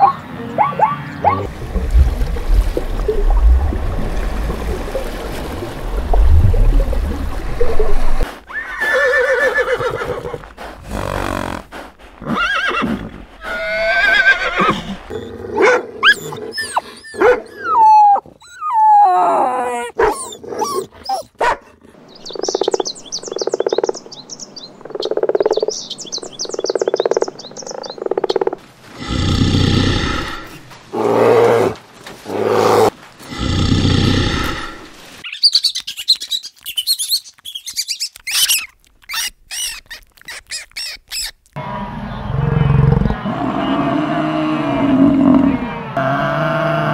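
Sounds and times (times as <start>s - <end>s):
dog growling and yelping: 15.2s - 21.4s
rat squeaking: 35.3s - 41.4s.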